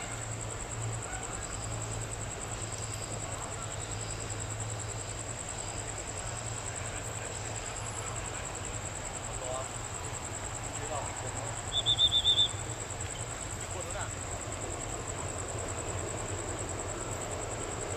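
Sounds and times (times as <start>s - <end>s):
insects trilling: 0.0s - 17.9s.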